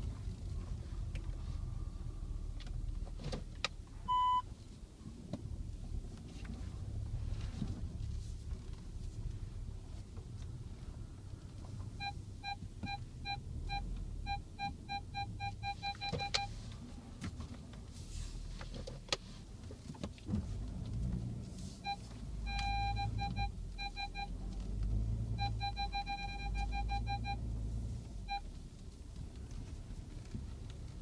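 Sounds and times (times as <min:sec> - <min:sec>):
car engine humming: 0:00.0 - 0:31.0
parking sensor beeping: 0:04.1 - 0:04.5, 0:11.9 - 0:16.6, 0:21.8 - 0:24.4, 0:25.1 - 0:27.6, 0:28.2 - 0:28.5.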